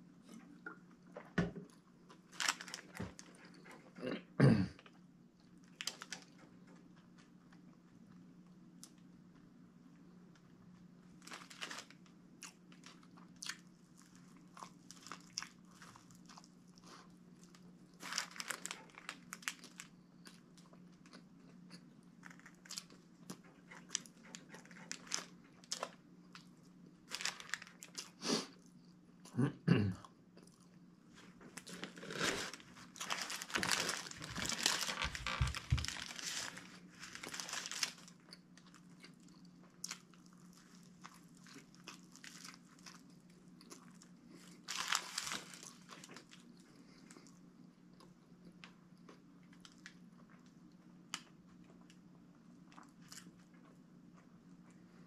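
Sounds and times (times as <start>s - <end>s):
chewing and biting sandwich: 11.2s - 28.8s.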